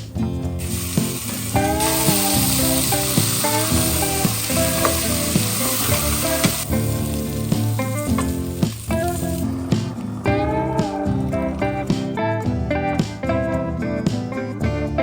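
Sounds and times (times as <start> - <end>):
background music: 0.0 - 15.0
food sizzling in a pan: 0.4 - 12.2.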